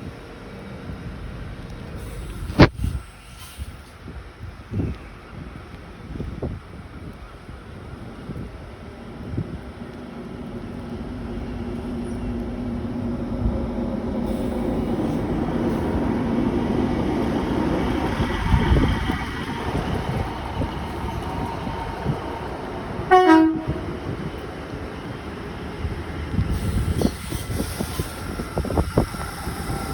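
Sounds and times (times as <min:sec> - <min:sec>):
passenger train running: 0:00.0 - 0:29.9
train horn toot: 0:23.1 - 0:24.0.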